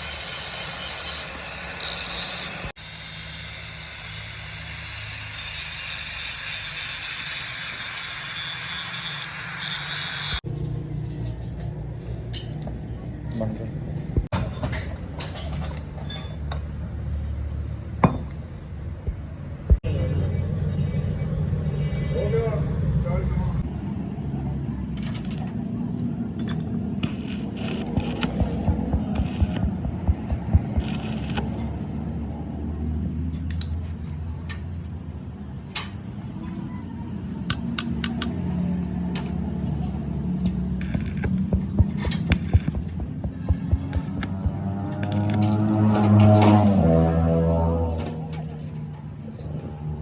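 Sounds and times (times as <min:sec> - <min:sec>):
metal tools clinking and tapping: 0:14.5 - 0:16.7
workshop machine humming: 0:26.5 - 0:31.8, 0:40.5 - 0:45.7
heavy knock: 0:28.4 - 0:30.9, 0:41.2 - 0:44.7.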